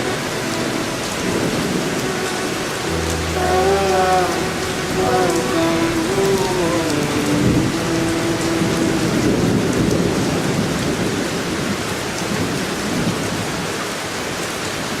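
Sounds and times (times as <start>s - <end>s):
held musical note: 0.0s - 10.3s
heavy rain: 0.0s - 15.0s.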